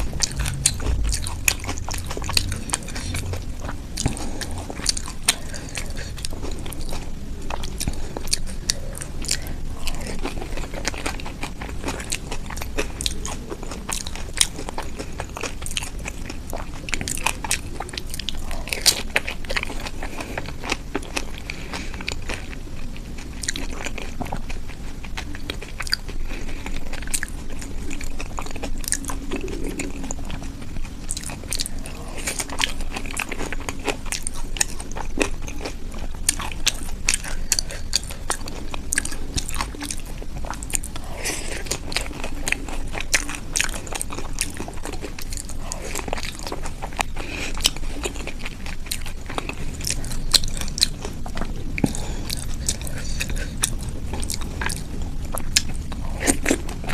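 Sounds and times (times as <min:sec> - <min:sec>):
person chewing and crunching: 0:00.0 - 0:56.9.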